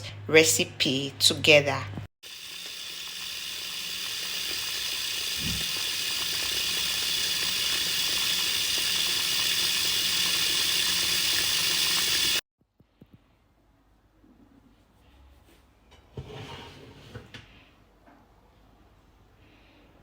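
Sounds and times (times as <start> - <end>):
food sizzling in a pan: 2.2 - 12.4.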